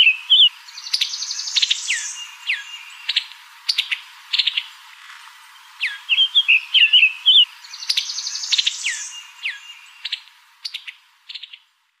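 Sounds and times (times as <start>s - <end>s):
songbirds chirping and trilling: 0.0s - 11.9s.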